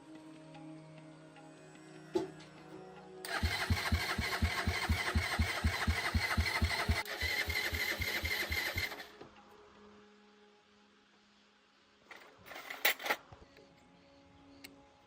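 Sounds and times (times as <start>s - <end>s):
small motorcycle engine chugging: 3.3s - 9.1s.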